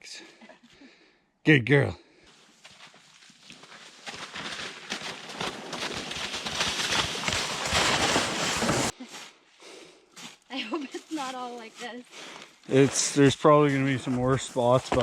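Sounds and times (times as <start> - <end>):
footsteps: 2.3 - 15.0
plastic toboggans scraping ground: 3.5 - 9.0.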